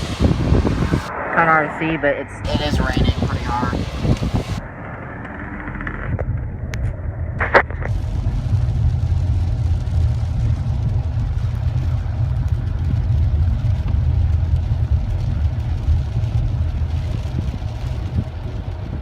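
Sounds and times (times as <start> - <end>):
rain hiss: 0.0 - 1.1, 2.4 - 4.6, 7.9 - 19.0
car driving rumble: 0.0 - 19.0.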